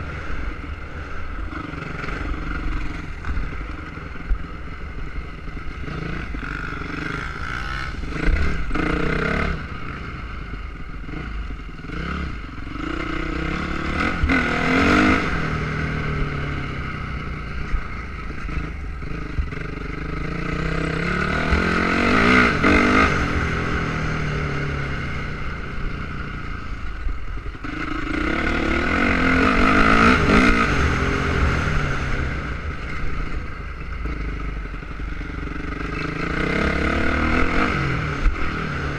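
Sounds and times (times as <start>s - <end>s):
motorcycle engines passing: 0.0s - 38.9s.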